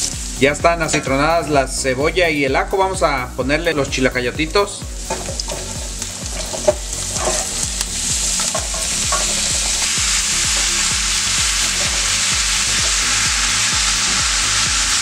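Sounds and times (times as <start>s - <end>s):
squash sizzling in hot oil: 0.0s - 1.8s, 4.6s - 15.0s
wooden spatula scraping pan: 5.0s - 10.0s.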